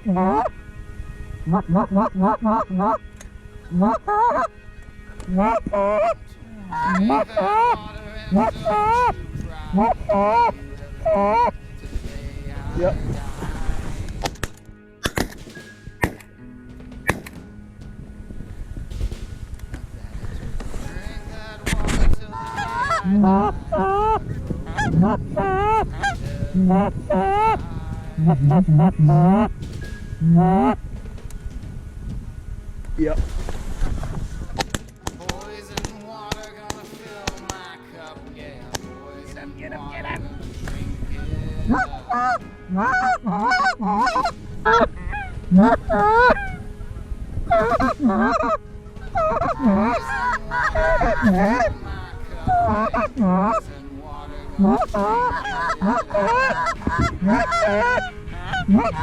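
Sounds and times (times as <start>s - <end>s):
geese honking: 0.0s - 15.2s, 18.6s - 30.9s, 33.0s - 59.0s.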